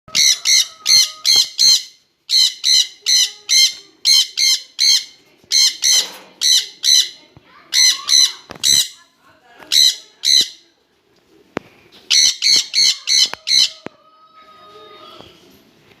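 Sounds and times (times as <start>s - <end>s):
conures squawking: 0.1s - 9.0s, 12.1s - 14.0s.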